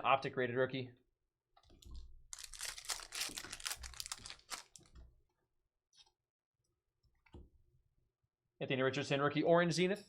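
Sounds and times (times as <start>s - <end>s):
foil wrapper crackling: 2.3s - 4.9s
wrapper rustle: 2.3s - 4.9s.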